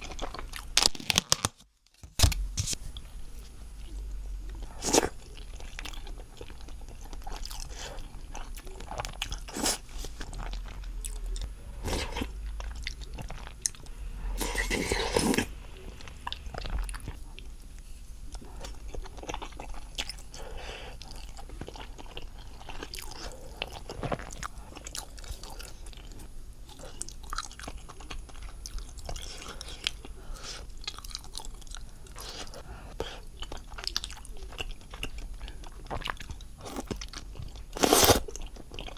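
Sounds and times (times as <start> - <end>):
person chewing and biting: 3.9 - 13.8, 14.4 - 15.5, 33.4 - 38.9.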